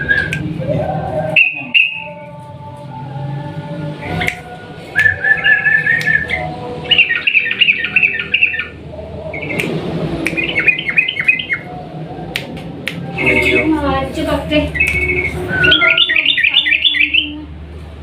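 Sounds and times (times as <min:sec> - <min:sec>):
bulbul bubbling song: 0:04.1 - 0:11.7, 0:14.7 - 0:17.4.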